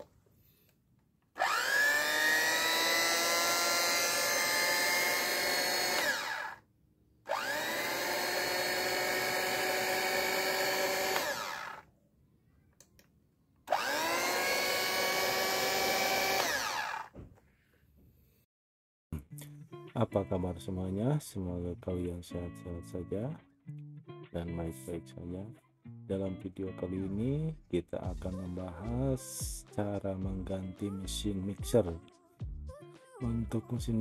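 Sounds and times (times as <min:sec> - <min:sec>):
hand mixer motor whine: 0:01.4 - 0:06.6, 0:07.3 - 0:11.8, 0:13.7 - 0:17.2.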